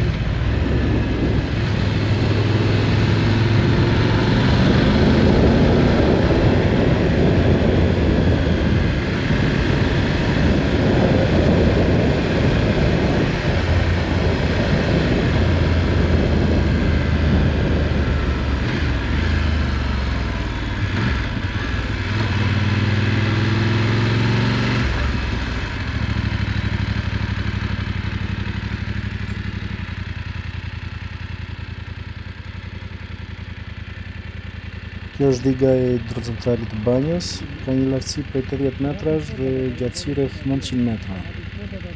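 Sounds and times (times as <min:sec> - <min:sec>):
motorcycle engine running: 0:00.0 - 0:41.9
wind noise: 0:04.2 - 0:18.5.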